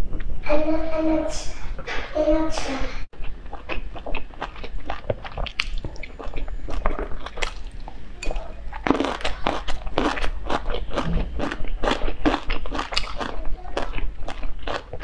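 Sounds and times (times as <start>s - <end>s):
chewing with wet mouth smacks: 3.2s - 15.0s.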